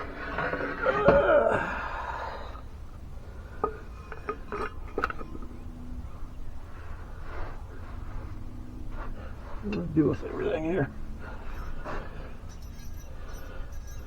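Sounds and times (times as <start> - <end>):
metal clinks and clicks: 11.4 - 14.0
metal parts rattling: 11.5 - 14.0.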